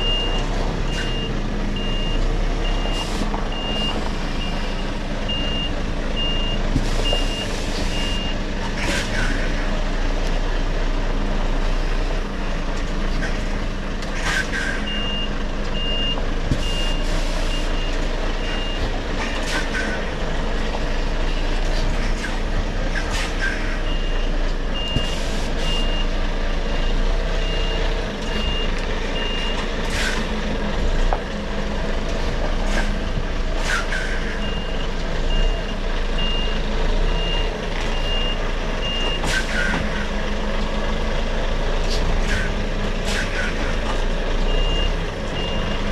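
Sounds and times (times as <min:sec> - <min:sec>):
reversing alarm beeps: 0:00.0 - 0:08.4, 0:14.6 - 0:18.8, 0:23.4 - 0:29.6, 0:33.8 - 0:36.6, 0:37.2 - 0:39.9, 0:44.5 - 0:45.9
diesel engine running: 0:00.0 - 0:45.9.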